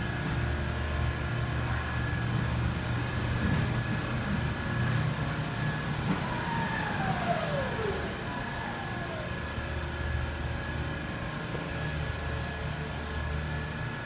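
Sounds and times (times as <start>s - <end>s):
forklift electric drive hum: 0.0s - 14.0s
motor whine falling in pitch: 5.5s - 10.8s.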